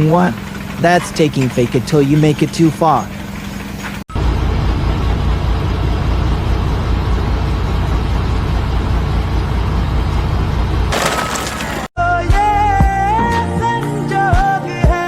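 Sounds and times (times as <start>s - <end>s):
heavy engine rumbling: 0.0s - 11.9s.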